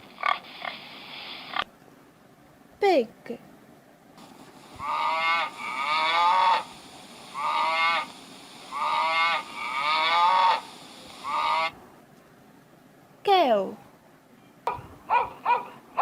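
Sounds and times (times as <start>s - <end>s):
pig squealing: 4.8s - 8.1s, 8.7s - 11.8s.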